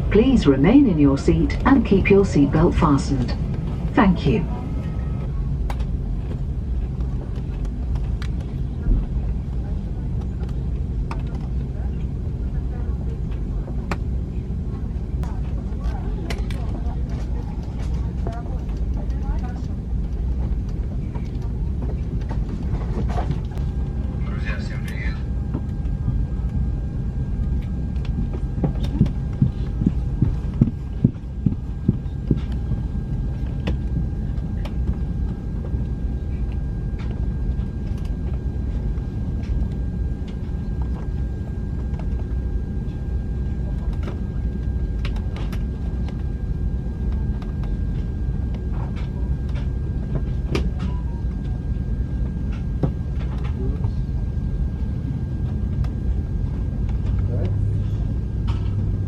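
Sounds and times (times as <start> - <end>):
steady tones: 0.0 - 5.1
aircraft cabin rumble and hum: 0.0 - 59.0.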